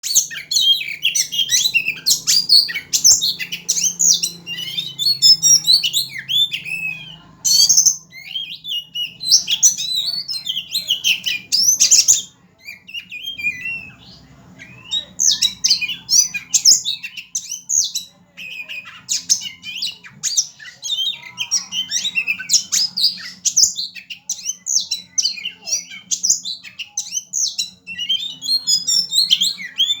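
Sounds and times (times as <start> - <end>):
songbird singing: 0.0 - 30.0.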